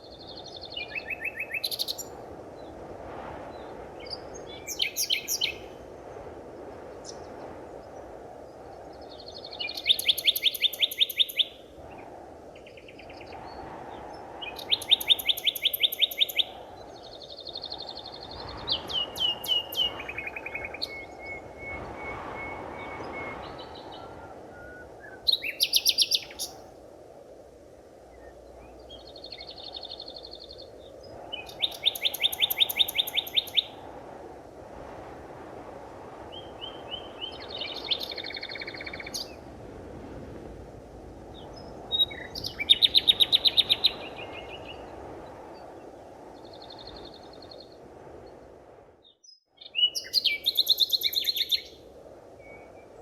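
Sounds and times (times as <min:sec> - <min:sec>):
forest birds singing: 0:00.0 - 0:02.8, 0:03.5 - 0:05.8, 0:08.8 - 0:12.0, 0:12.6 - 0:26.6, 0:28.1 - 0:33.8, 0:36.3 - 0:39.4, 0:41.3 - 0:44.9, 0:46.3 - 0:47.8, 0:49.0 - 0:51.8
low ambient hiss: 0:00.0 - 0:49.1.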